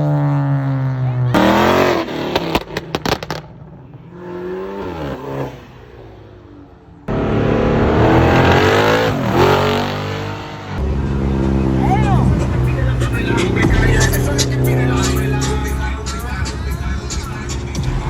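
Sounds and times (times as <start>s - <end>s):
car engine revving: 0.0s - 18.0s
sharp exhaust pops: 2.2s - 3.6s.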